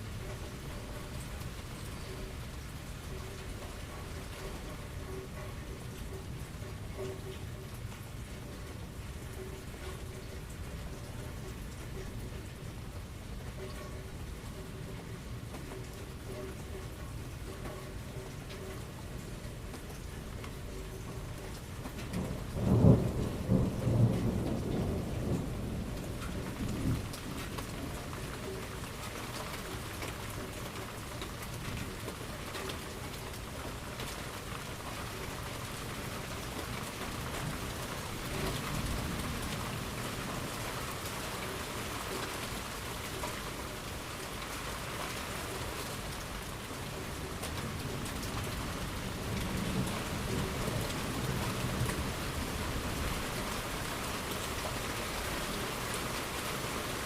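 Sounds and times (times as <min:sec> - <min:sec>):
heavy rain: 0:00.0 - 0:57.0
thunder crack and rumble: 0:22.1 - 0:28.2.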